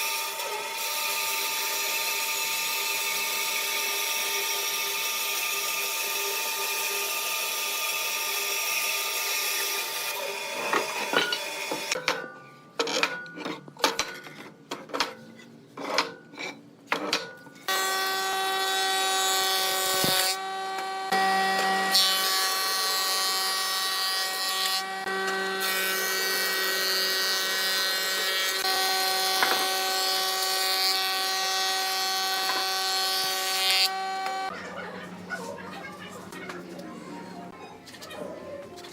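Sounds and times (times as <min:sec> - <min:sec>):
power tool whining: 0:17.7 - 0:34.5.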